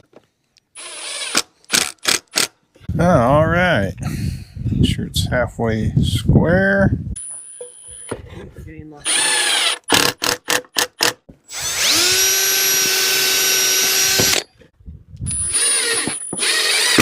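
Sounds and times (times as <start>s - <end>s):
power drill drilling into wood: 0.8s - 2.5s, 9.1s - 14.5s, 15.3s - 17.0s.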